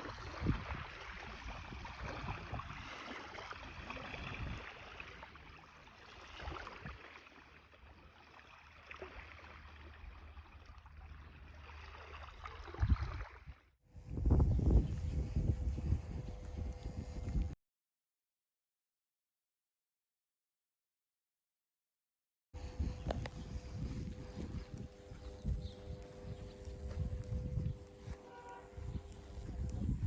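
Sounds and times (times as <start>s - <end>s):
wind buffeting microphone: 0.0s - 3.1s, 3.7s - 4.8s, 14.0s - 17.6s, 22.6s - 30.0s.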